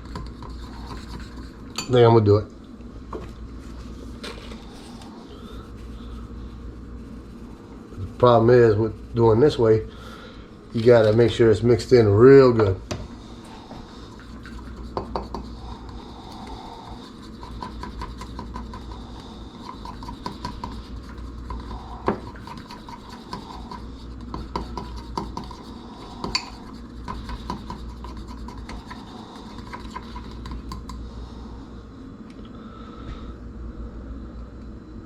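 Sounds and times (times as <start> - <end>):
utensil scraping a bowl: 0.0 - 2.0, 4.6 - 9.8, 14.0 - 31.0.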